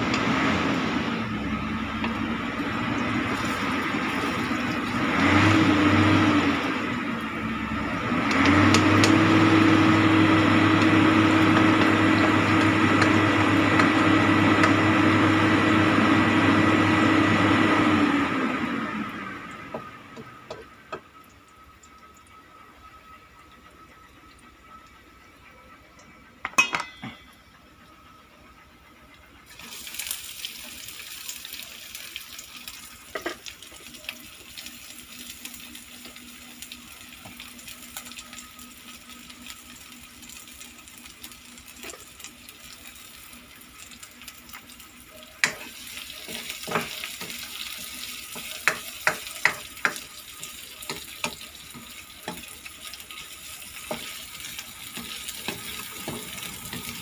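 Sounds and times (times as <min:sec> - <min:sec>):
garlic and onions sizzling: 0:00.0 - 0:20.9, 0:29.5 - 0:57.0.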